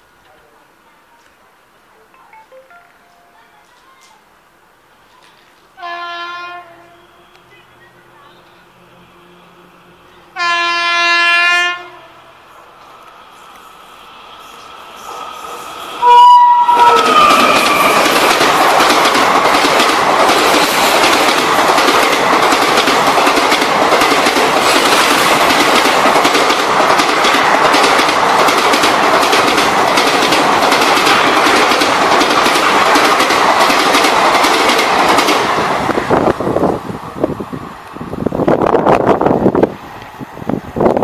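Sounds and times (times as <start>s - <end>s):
train horn: 5.8s - 7.9s, 9.0s - 12.4s, 16.0s - 18.0s
train wheels clattering: 16.8s - 35.7s.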